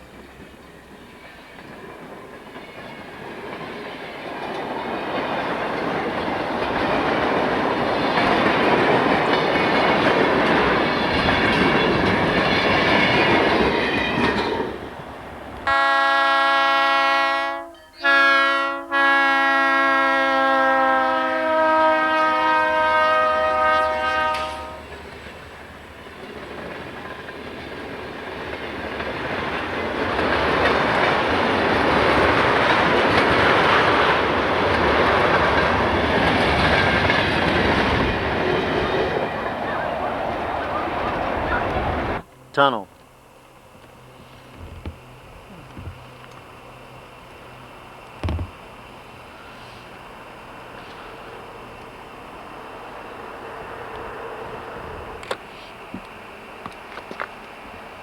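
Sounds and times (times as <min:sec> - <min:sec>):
freight train rolling: 0:00.0 - 0:58.0
locomotive air horn: 0:15.6 - 0:24.9.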